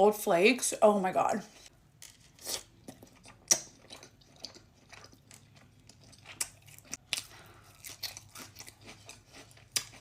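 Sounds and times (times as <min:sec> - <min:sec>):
person chewing: 0:02.3 - 0:10.0.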